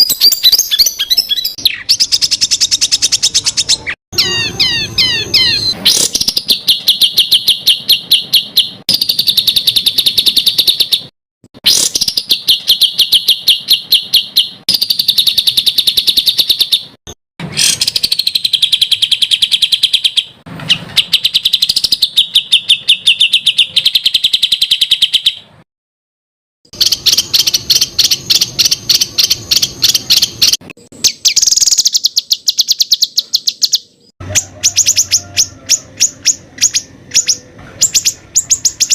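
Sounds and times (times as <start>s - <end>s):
songbird singing rapid high notes: 0.0s - 25.5s, 26.7s - 38.9s.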